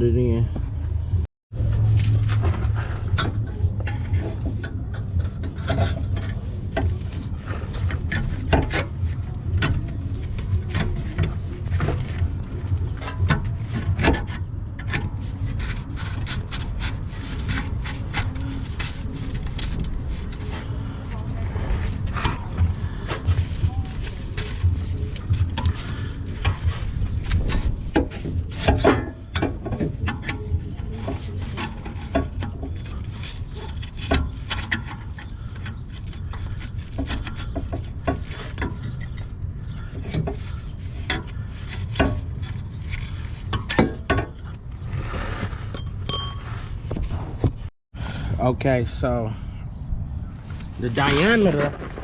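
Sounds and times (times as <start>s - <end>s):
low rumble: 0.0s - 32.1s.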